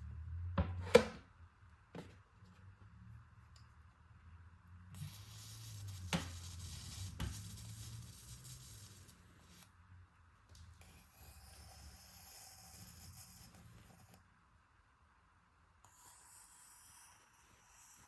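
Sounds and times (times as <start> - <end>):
pen scratching on paper: 5.0 - 9.7, 10.8 - 14.2, 15.8 - 18.0.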